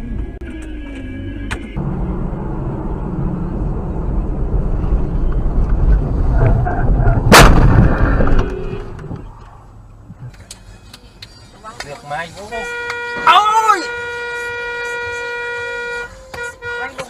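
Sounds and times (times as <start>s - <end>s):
loud low rumble: 1.4s - 9.3s
loud collision bang: 7.1s - 8.8s.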